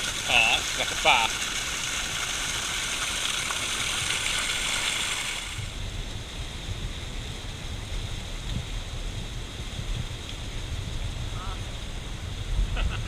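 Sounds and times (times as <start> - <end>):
running water hiss: 0.0 - 8.4
wind rumble on microphone: 5.4 - 13.0.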